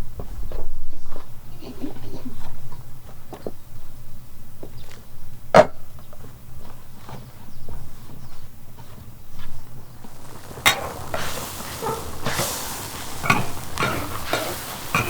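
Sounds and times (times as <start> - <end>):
food sizzling in hot oil: 10.0 - 15.0.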